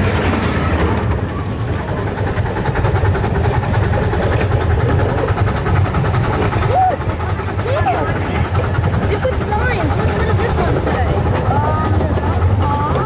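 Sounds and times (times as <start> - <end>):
miniature train wheels rumbling: 0.0 - 13.0.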